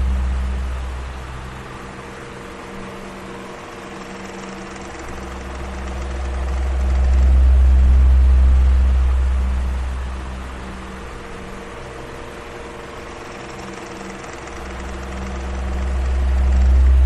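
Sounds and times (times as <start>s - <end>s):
electric fan running: 0.0s - 17.0s.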